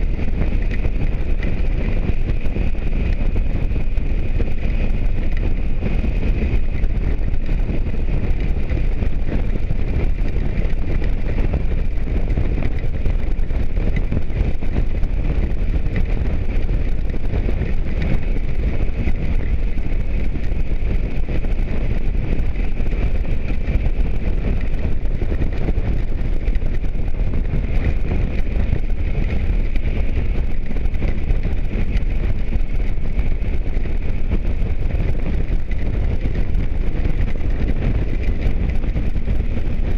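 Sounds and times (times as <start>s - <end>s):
motorcycle engine: 0.0s - 39.9s
wind rushing over microphone: 0.0s - 39.9s.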